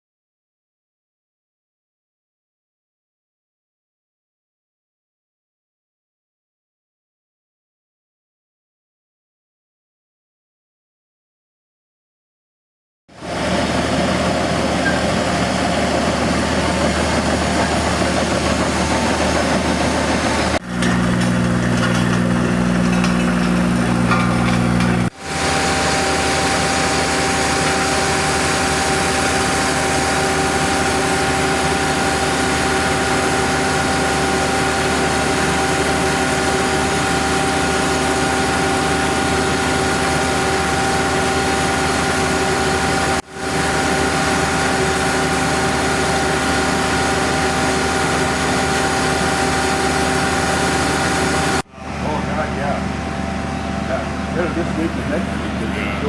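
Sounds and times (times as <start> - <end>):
heavy machinery engines running: 13.2 - 56.0.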